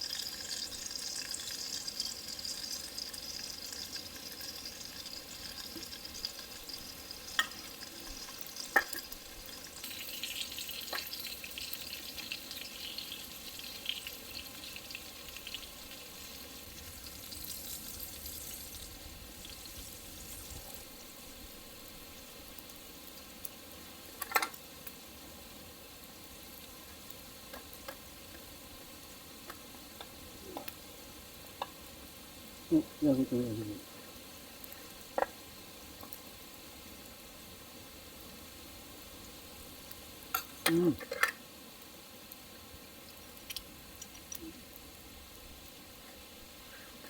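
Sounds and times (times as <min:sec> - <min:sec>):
food sizzling over fire: 0:00.0 - 0:47.0.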